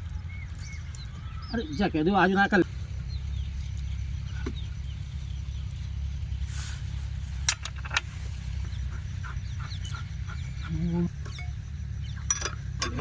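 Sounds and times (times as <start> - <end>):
diesel pump engine rumbling: 0.0 - 13.0.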